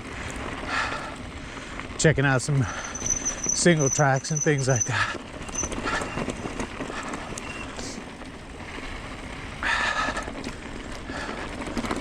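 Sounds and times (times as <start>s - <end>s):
tyres rumbling on gravel: 0.0s - 12.0s
brake squeak: 2.6s - 8.0s.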